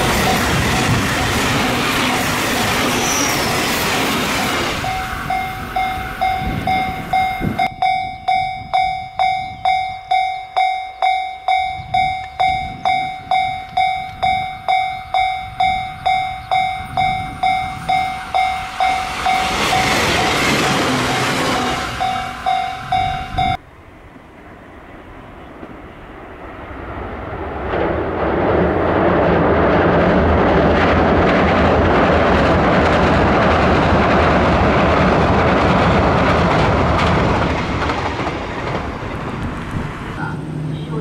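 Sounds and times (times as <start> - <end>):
train passing with rumble: 0.0 - 41.0
wheels clicking over rail joints: 31.0 - 40.2.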